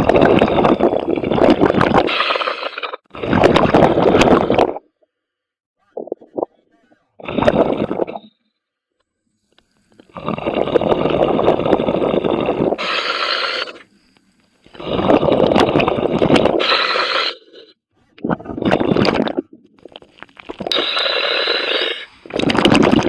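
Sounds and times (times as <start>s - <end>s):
diver exhaling bubbling: 0.0s - 4.9s, 7.2s - 8.3s, 10.0s - 13.9s, 14.7s - 23.0s
regulator inhale hiss: 9.4s - 15.8s, 16.4s - 17.7s, 20.7s - 22.3s.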